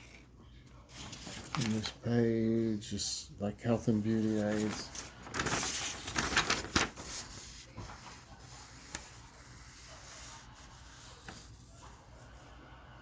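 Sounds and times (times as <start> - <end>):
paper rustling and crinkling: 0.8 - 2.1, 3.9 - 12.0.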